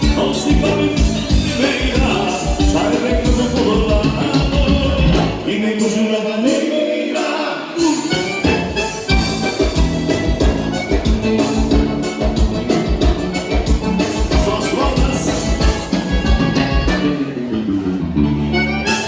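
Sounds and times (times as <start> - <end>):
bass and drum beat: 0.0 - 5.5, 7.8 - 17.3
accordion-led dance band music: 0.0 - 19.0.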